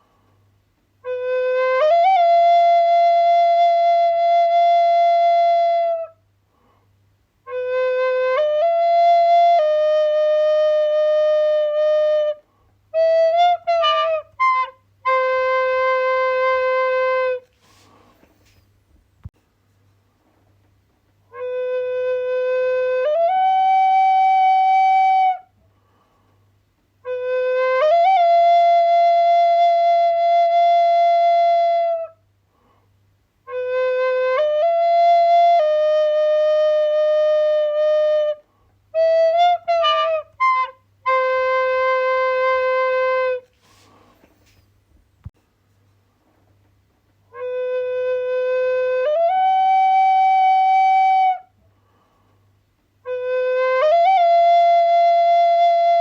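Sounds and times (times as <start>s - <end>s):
slow flute melody: 1.0s - 6.3s, 7.4s - 18.6s, 21.3s - 25.6s, 27.0s - 32.3s, 33.4s - 44.6s, 47.3s - 51.6s, 53.0s - 56.0s.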